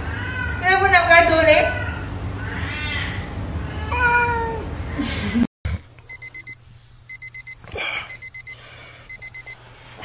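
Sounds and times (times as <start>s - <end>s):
cat meowing: 1.7s - 4.6s
digital alarm clock beeping: 6.1s - 9.6s.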